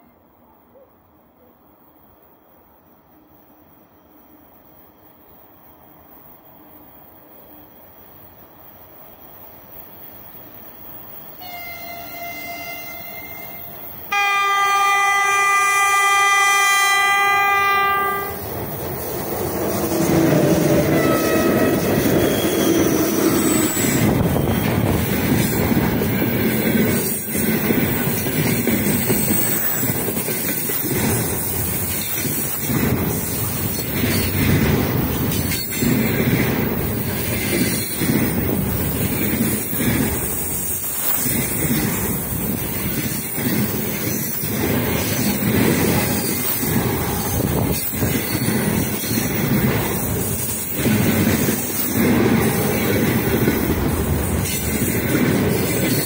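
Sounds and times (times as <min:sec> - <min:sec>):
freight train rumbling past: 0:01.8 - 0:56.0
wheels clacking on rails: 0:09.8 - 0:56.0
locomotive horn blast: 0:11.4 - 0:18.4, 0:20.8 - 0:22.5.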